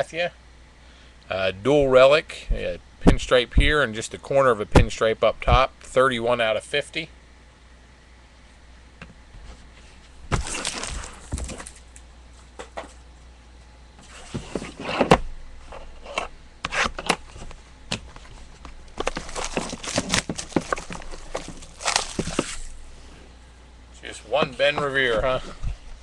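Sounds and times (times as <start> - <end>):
packaging crinkling and rustling: 10.3 - 12.0, 16.8 - 22.8.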